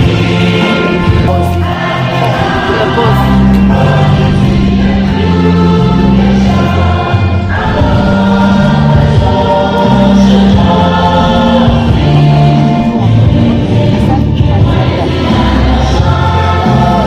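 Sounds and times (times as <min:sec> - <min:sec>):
choir singing: 0:00.0 - 0:17.0
instrumental accompaniment: 0:00.0 - 0:17.0.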